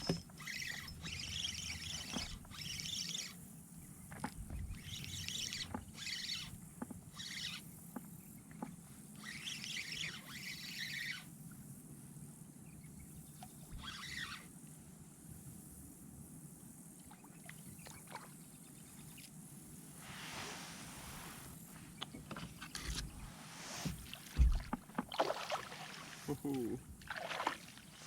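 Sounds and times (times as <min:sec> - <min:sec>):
water splashing around kayak: 0:20.1 - 0:28.0
light knocks: 0:23.8 - 0:25.1.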